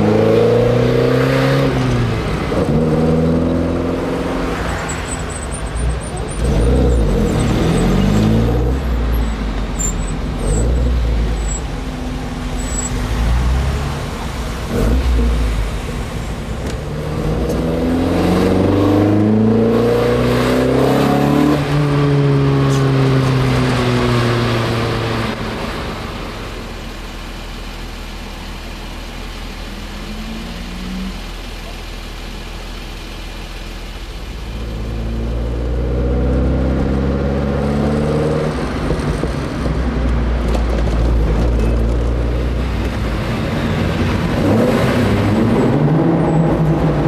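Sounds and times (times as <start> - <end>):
car engine running: 22.8 - 37.0.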